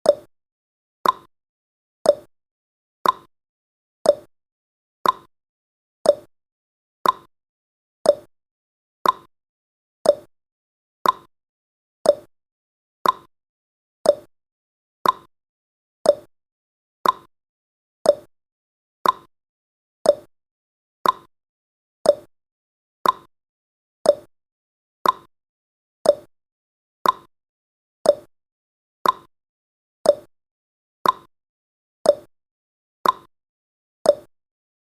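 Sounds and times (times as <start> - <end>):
timer tick-tock: 0.0 - 0.3, 1.0 - 1.3, 2.0 - 2.3, 3.0 - 3.3, 4.0 - 4.3, 5.0 - 5.3, 6.0 - 6.3, 7.0 - 7.3, 8.0 - 8.3, 9.0 - 9.3, 10.0 - 10.3, 11.0 - 11.3, 12.0 - 12.3, 13.0 - 13.3, 14.0 - 14.3, 15.0 - 15.3, 16.0 - 16.3, 17.0 - 17.3, 18.0 - 18.3, 19.0 - 19.3, 20.0 - 20.3, 21.0 - 21.3, 22.0 - 22.3, 23.0 - 23.3, 24.0 - 24.3, 25.0 - 25.3, 26.0 - 26.3, 27.0 - 27.3, 28.0 - 28.3, 29.0 - 29.3, 30.0 - 30.3, 31.0 - 31.4, 32.0 - 32.3, 33.0 - 33.4, 34.0 - 34.4.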